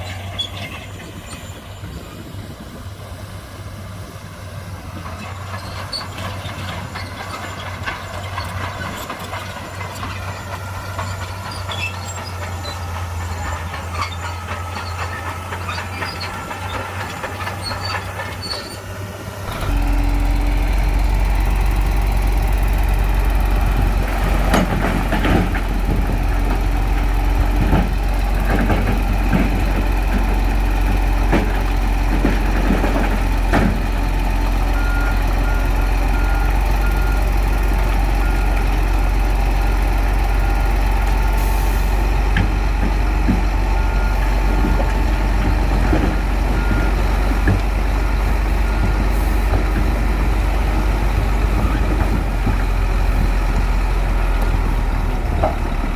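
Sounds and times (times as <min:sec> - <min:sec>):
bulldozer diesel engine running: 0:00.0 - 0:55.9
clanks from tracks and blade: 0:05.0 - 0:19.0.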